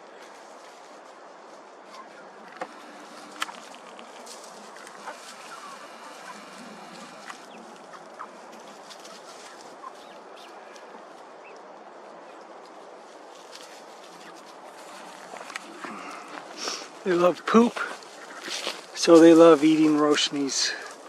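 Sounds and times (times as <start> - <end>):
steady outdoor hiss: 0.0 - 21.0
poultry clucking: 1.9 - 11.6, 13.5 - 21.0
short bird calls: 1.9 - 11.6.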